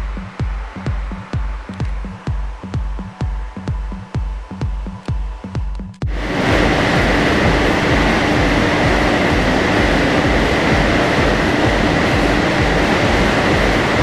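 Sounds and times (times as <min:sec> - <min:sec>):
diesel engine running under load: 0:06.1 - 0:14.0
dyno rollers turning: 0:06.1 - 0:14.0.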